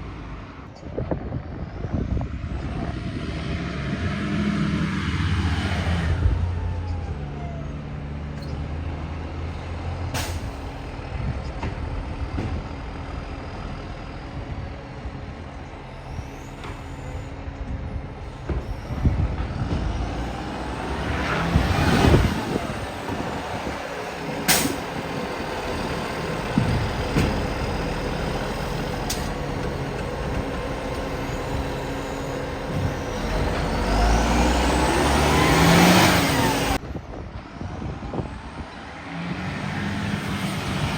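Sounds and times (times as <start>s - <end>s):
diesel truck engine revving: 1.9s - 36.9s, 37.8s - 40.9s
air brake hisses: 24.5s - 24.9s.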